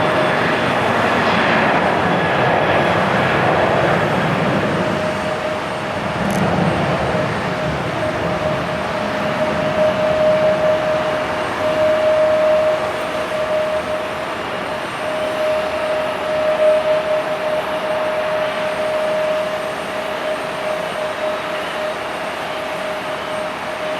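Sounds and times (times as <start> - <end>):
jet engines running: 0.0 - 23.9.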